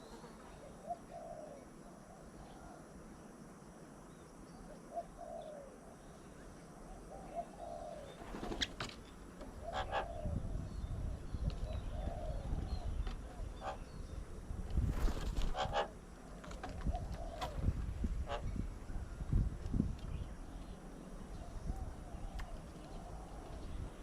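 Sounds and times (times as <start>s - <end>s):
doves cooing: 0.4s - 2.8s, 4.9s - 6.0s, 6.8s - 14.0s, 15.0s - 18.5s
sharp bird calls: 9.5s - 14.2s.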